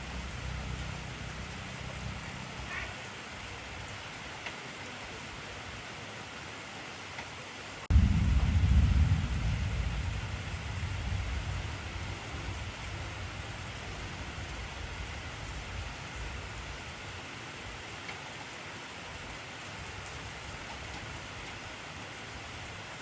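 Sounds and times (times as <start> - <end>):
heavy rain hiss: 0.0 - 23.0
low rumble of thunder: 7.9 - 17.1.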